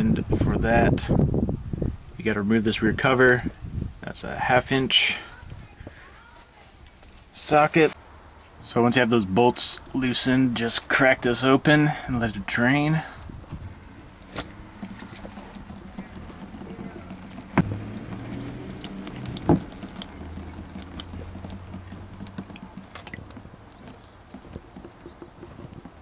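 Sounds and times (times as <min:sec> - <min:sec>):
oil dribbling into drain pan: 0:17.2 - 0:23.4.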